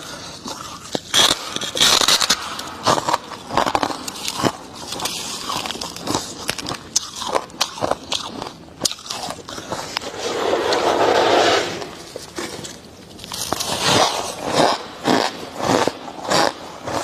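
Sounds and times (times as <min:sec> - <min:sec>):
chewing ice crunching: 0:00.0 - 0:10.1.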